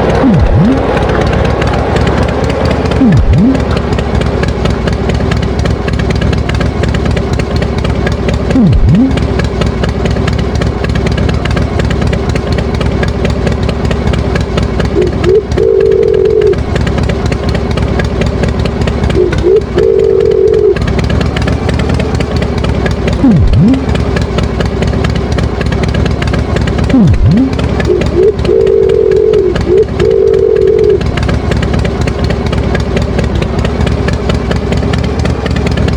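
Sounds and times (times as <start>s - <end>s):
held tone: 0.0s - 7.0s, 8.6s - 9.3s, 15.0s - 16.6s, 19.2s - 20.8s, 23.2s - 24.0s, 26.9s - 31.0s
swoops dropping in pitch: 0.0s - 7.2s, 8.5s - 9.4s, 15.0s - 16.7s, 19.2s - 20.8s, 23.2s - 24.0s, 26.9s - 31.0s
tractor engine running: 0.0s - 35.9s.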